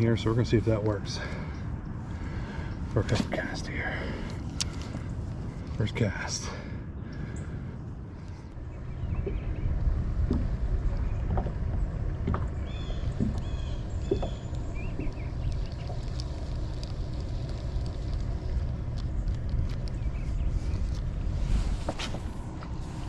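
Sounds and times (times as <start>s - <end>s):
wind buffeting microphone: 6.8s - 23.0s.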